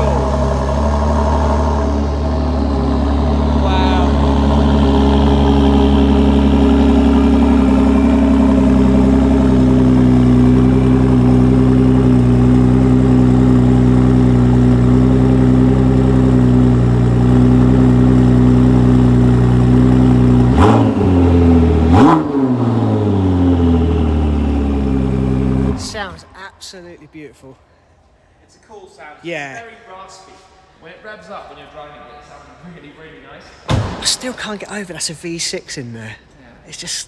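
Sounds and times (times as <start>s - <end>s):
car engine idling and revving: 0.0s - 26.8s.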